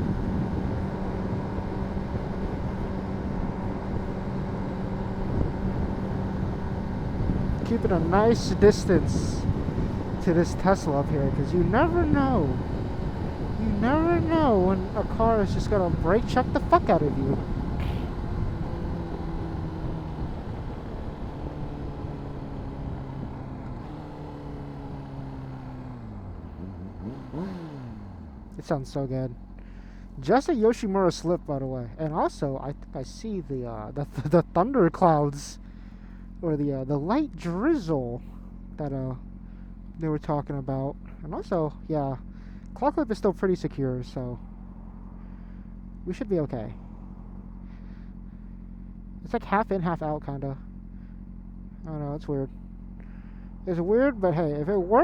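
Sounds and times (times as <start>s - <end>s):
motorcycle engine cruising: 0.0s - 55.0s
wind rushing over microphone: 5.1s - 16.1s.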